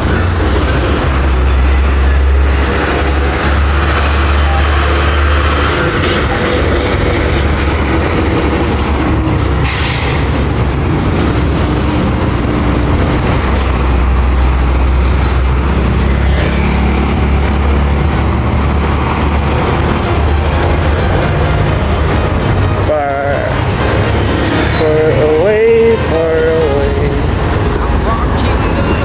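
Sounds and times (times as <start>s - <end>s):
vehicle engine rumble: 0.0s - 29.0s
short sharp hiss: 9.7s - 10.4s.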